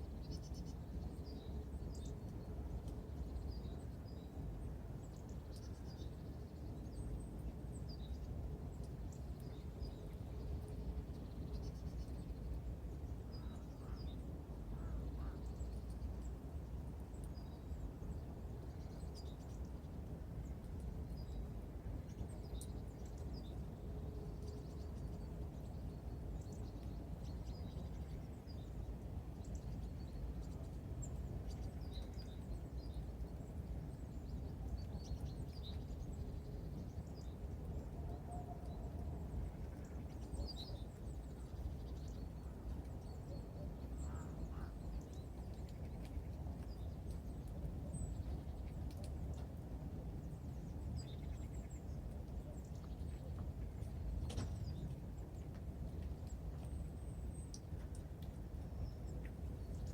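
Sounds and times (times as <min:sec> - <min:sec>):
songbirds calling: 0:13.3 - 0:16.3, 0:29.4 - 0:59.9.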